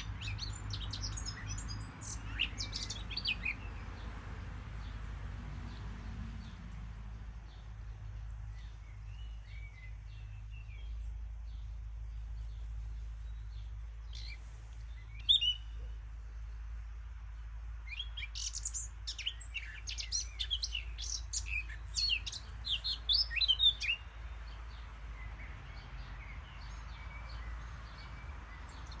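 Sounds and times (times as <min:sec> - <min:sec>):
birds chirping: 0:00.0 - 0:04.1, 0:07.4 - 0:16.6, 0:17.3 - 0:29.0.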